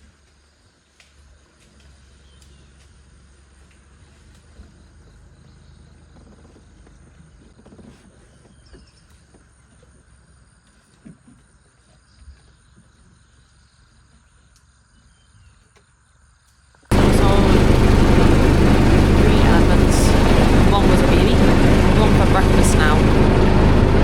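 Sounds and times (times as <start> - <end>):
faint drone of insects: 0.0 - 17.6.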